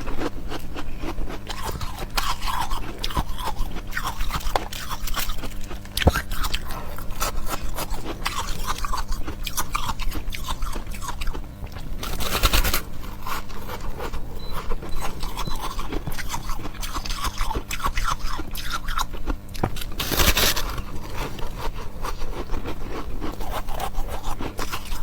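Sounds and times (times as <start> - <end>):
ice being crunched and chewed: 0.0 - 25.0.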